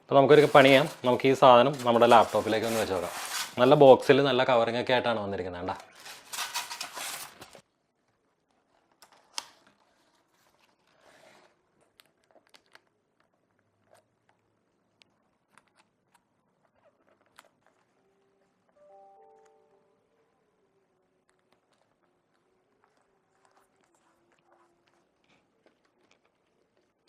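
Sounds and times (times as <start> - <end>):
packaging crinkling and tearing: 0.1 - 3.8, 5.7 - 7.7.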